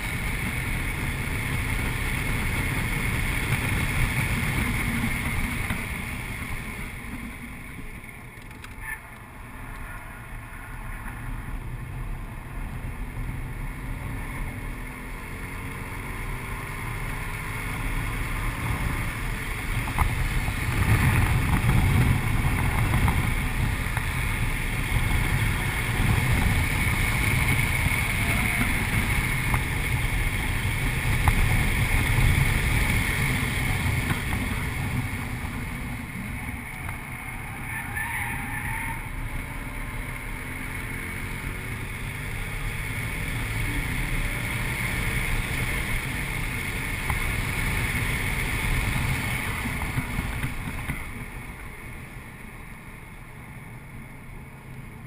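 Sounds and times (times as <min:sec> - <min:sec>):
car engine running hard: 0:00.0 - 0:55.0
road noise inside car: 0:00.0 - 0:55.0.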